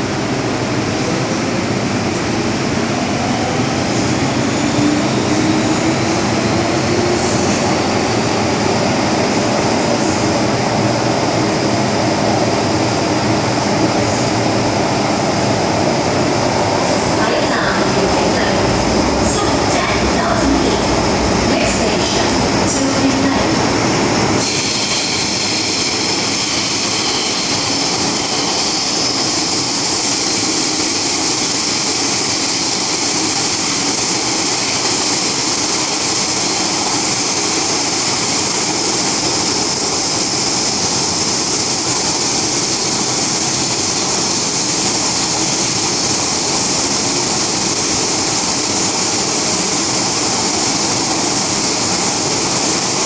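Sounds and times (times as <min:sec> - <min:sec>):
metro train running noise: 0:00.0 - 0:53.0.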